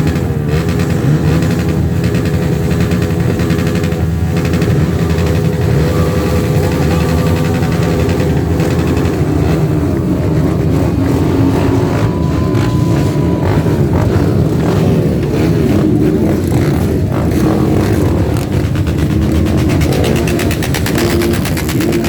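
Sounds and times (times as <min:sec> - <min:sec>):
dirt bike engines idling and revving: 0:00.0 - 0:22.0.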